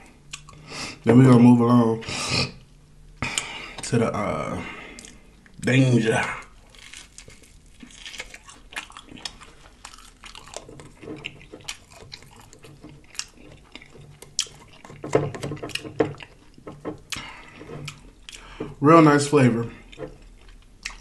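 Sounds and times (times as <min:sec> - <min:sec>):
chewing with mouth clicks: 0:00.3 - 0:00.6, 0:06.7 - 0:18.7, 0:19.8 - 0:21.0
lip smacks: 0:00.3 - 0:00.6.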